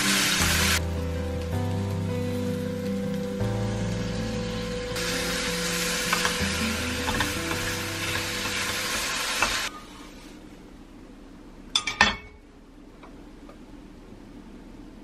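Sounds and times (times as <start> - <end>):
fish cakes sizzling in frying pan: 0.0 - 9.7
pan clinking on stove: 11.8 - 12.4.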